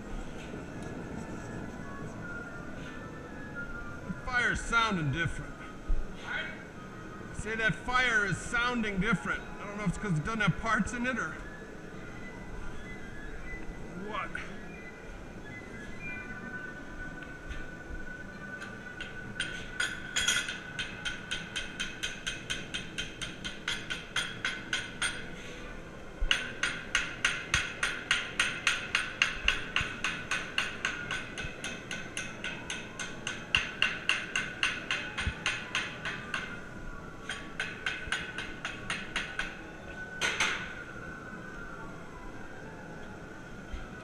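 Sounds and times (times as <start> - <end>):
steady high tone: 0.0 - 22.9
hammer striking hot steel: 19.0 - 25.3, 26.3 - 36.6, 37.2 - 39.6.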